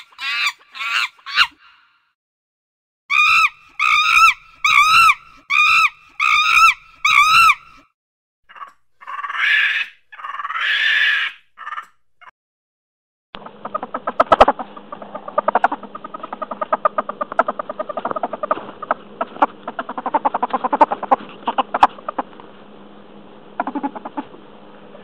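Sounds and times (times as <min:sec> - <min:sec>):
rapid short animal calls: 0:00.0 - 0:01.7, 0:08.5 - 0:12.3, 0:23.6 - 0:24.4.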